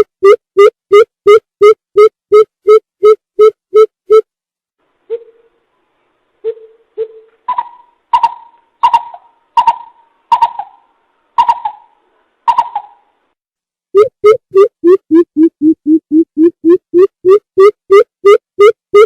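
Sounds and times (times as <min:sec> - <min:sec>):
bird hooting: 0:05.1 - 0:05.5, 0:06.4 - 0:13.1.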